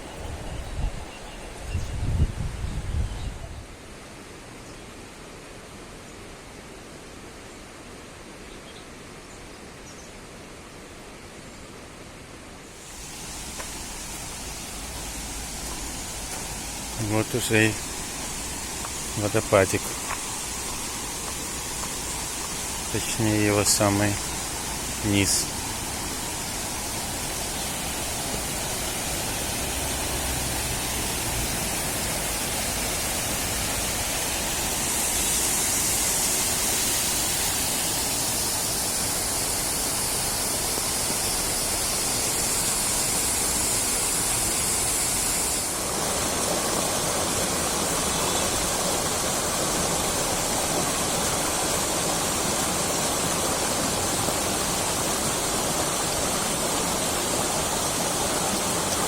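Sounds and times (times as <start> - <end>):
waterfall rushing over rocks: 12.6 - 59.0.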